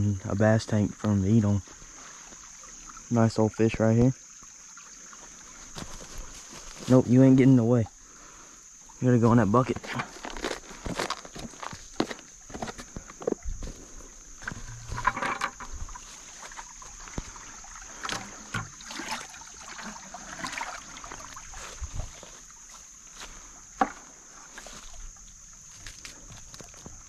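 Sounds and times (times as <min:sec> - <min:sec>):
water sloshing in a bucket: 0:00.7 - 0:07.8, 0:08.8 - 0:27.0
rustling and handling knocks: 0:14.4 - 0:15.8.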